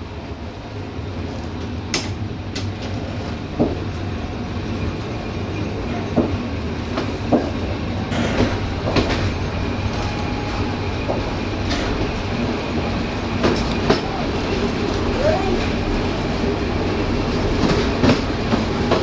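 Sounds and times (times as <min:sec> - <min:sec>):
train wheels rumbling on rail: 0:00.0 - 0:19.0
wheels clacking over rail joints: 0:05.5 - 0:16.0.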